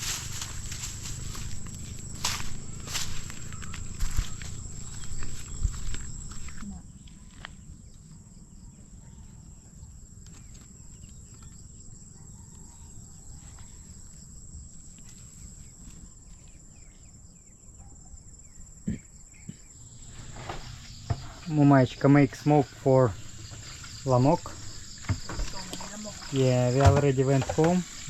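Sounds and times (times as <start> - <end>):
knocks and footstep thumps: 0.0 - 6.7, 23.2 - 28.0
insects trilling: 0.0 - 28.0.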